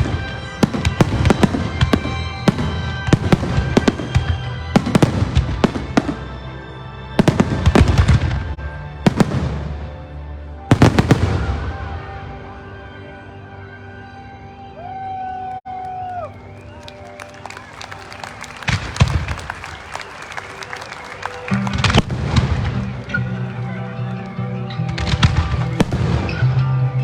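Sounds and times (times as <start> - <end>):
fireworks bangs: 0.0 - 6.4, 10.7 - 12.2, 16.3 - 26.7
music: 0.0 - 27.0.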